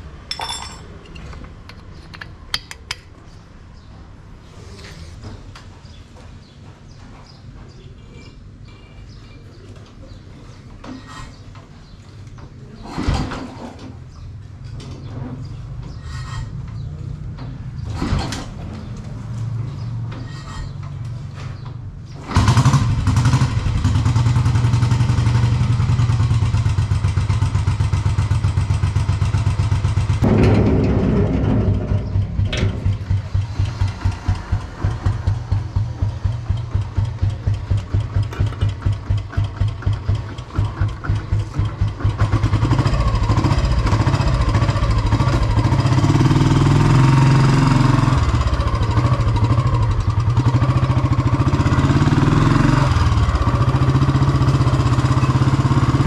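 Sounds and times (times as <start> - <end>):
motorcycle engine running: 22.3 - 56.0.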